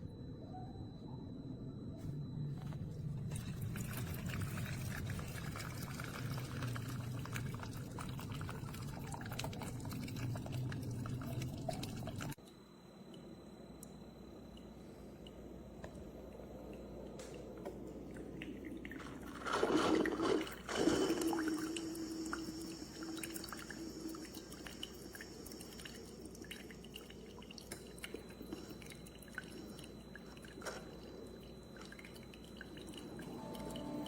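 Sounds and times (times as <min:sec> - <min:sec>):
liquid pouring and splashing: 0:03.2 - 0:12.4, 0:18.0 - 0:33.8
water dripping: 0:03.3 - 0:12.4, 0:13.1 - 0:19.6, 0:21.2 - 0:34.0.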